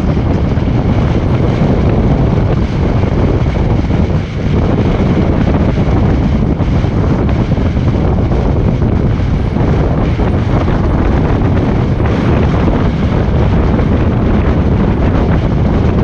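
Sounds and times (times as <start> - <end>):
car road and wind noise: 0.0 - 16.0.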